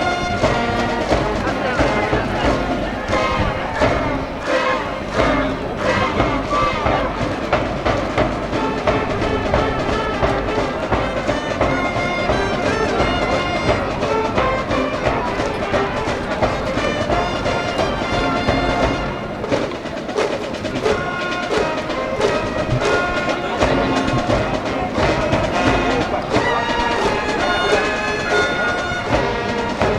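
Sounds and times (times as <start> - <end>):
brass band playing cheer tune: 0.0 - 29.9
steady drum beat: 0.0 - 29.9
trumpets: 0.0 - 29.9.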